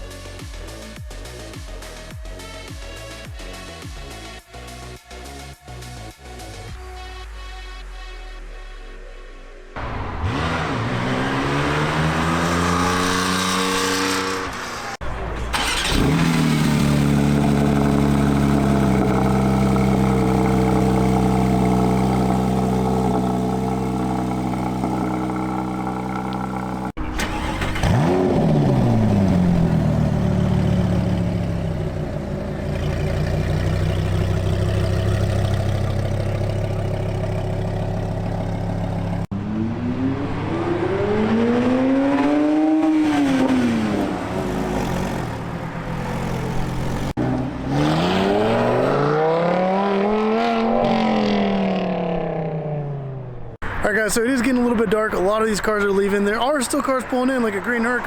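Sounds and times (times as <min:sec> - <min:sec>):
car engine idling and revving: 0:09.2 - 0:58.0.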